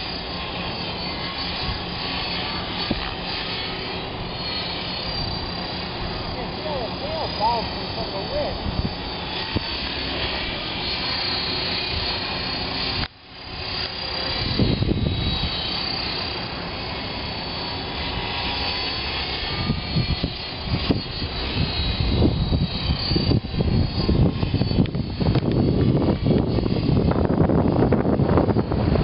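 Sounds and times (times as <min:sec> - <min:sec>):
wind buffeting microphone: 0:00.0 - 0:17.0, 0:17.9 - 0:29.0
rc helicopter motor and rotor whine: 0:00.0 - 0:29.0.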